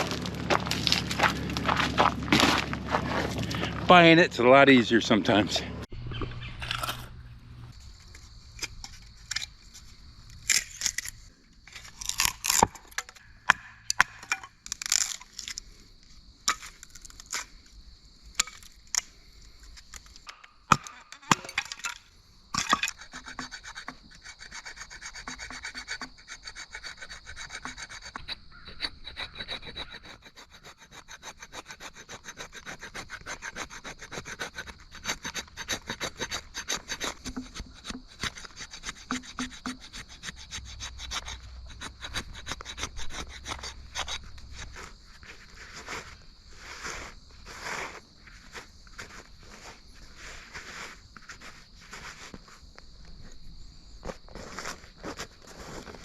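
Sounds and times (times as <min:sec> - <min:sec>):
hand saw cutting log: 0:22.6 - 0:48.0.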